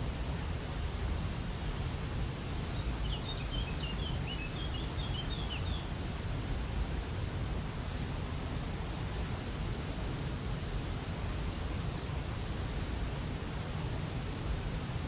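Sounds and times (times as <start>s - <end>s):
bird high chirps: 2.7s - 5.8s.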